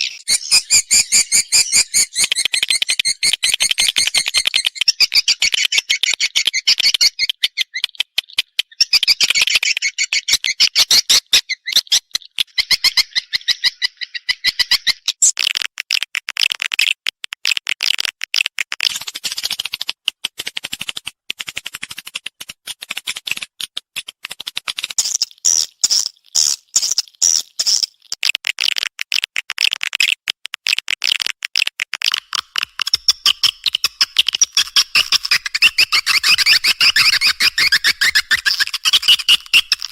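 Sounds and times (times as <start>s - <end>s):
swiftlet chirping trills: 0.0s - 5.1s.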